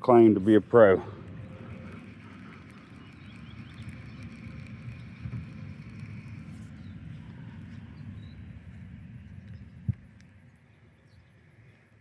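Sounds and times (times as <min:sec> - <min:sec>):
low rumble: 0:00.0 - 0:10.6.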